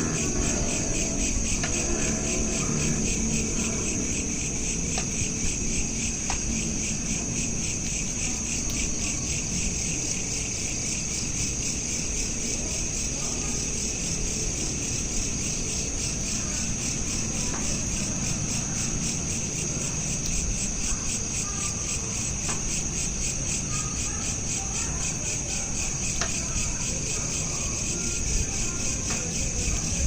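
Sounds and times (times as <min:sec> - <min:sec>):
low background rumble: 0:00.0 - 0:12.0
crickets chirping: 0:00.0 - 0:30.0.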